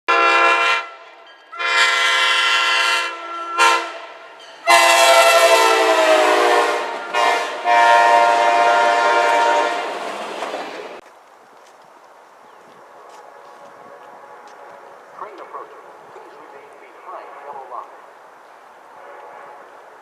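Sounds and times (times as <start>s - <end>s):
train horn blasts: 0.1s - 10.0s, 13.0s - 15.0s, 17.0s - 18.0s, 18.9s - 20.0s.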